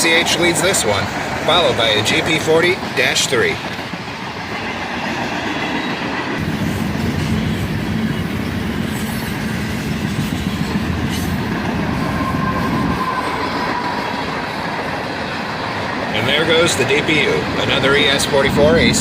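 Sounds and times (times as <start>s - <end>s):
freight cars rolling past: 0.0s - 19.0s
train wheel squeal: 4.2s - 17.4s.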